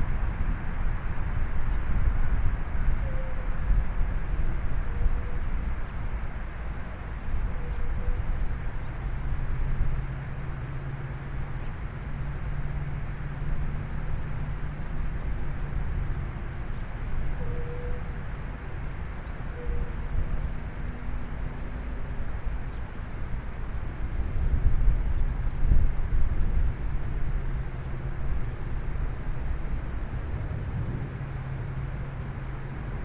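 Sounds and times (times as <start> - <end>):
wind gusting against microphone: 0.0 - 33.0.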